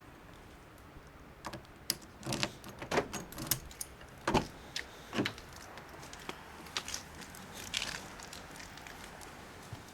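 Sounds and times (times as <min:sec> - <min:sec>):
clicks knocks and rustles in car: 0:01.5 - 0:04.6.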